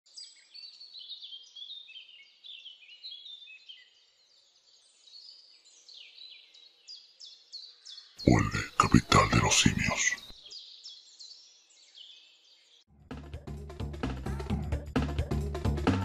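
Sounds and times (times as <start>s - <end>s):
faint birdsong chirps: 0.1s - 9.0s, 10.2s - 12.9s.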